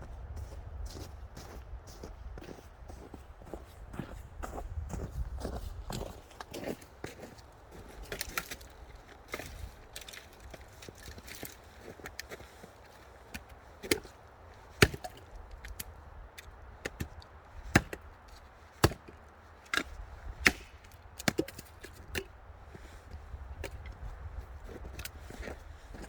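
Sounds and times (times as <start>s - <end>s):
axe chopping wood: 13.4s - 14.1s, 14.7s - 22.4s.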